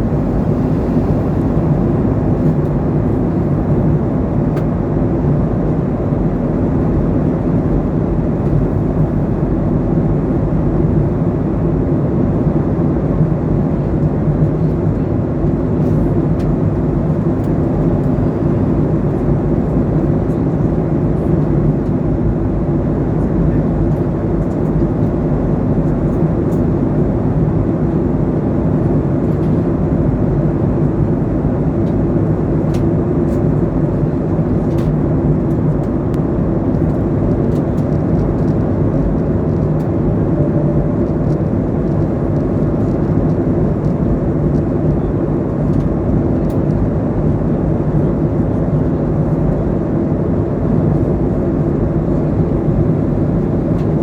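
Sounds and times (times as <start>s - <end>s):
airliner cabin engine drone: 0.0s - 54.0s.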